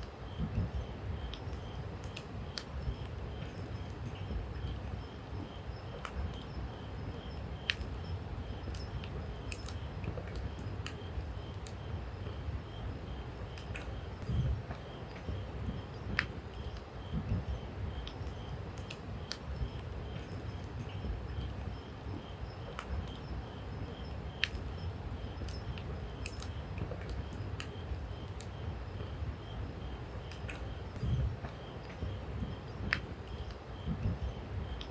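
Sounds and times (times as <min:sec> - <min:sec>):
campfire crackling and popping: 0:25.4 - 0:28.6.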